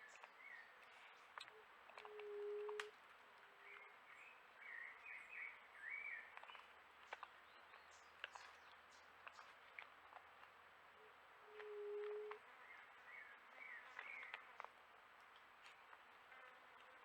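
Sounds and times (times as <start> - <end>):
low hooting bird call: 1.5 - 3.0, 11.0 - 13.8.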